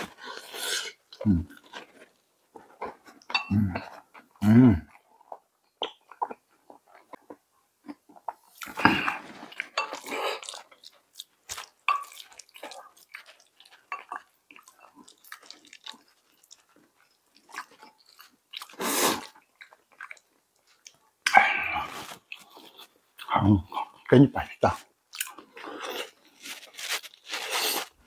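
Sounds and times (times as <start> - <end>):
person chewing rice and seaweed: 0.0 - 24.1, 25.1 - 28.0.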